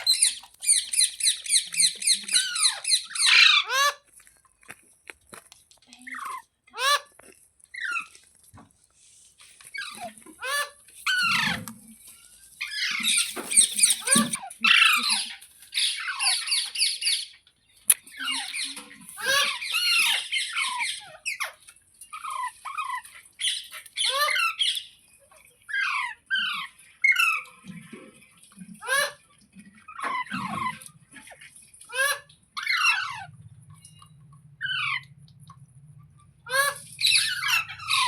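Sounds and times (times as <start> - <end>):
parakeet squawking and chattering: 0.0 - 4.0, 9.7 - 11.6, 12.6 - 17.2, 18.1 - 21.5, 34.0 - 35.2, 36.4 - 38.0.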